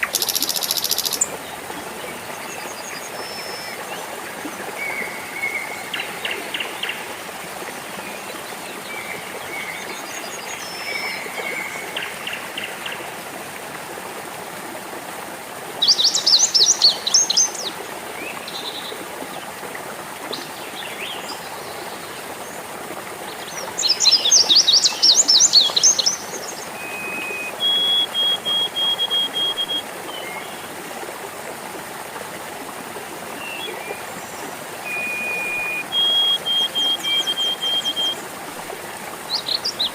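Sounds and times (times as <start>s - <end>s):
birds singing: 0.0s - 3.8s, 33.4s - 38.2s
water babbling: 0.0s - 39.9s.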